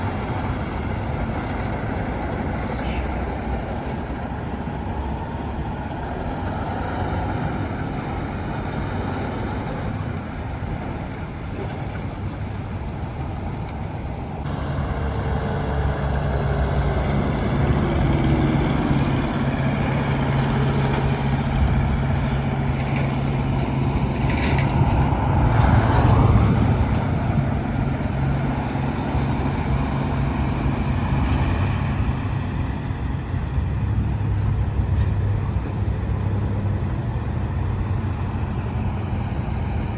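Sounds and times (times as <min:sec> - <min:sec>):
heavy truck engine hum: 0:00.0 - 0:39.9
highway traffic: 0:00.0 - 0:39.9.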